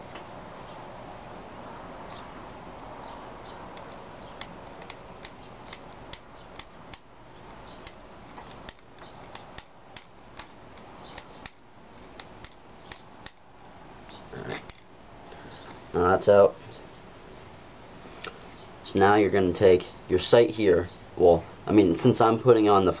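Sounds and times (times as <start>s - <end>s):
metal key clicking in screw: 3.8s - 13.8s.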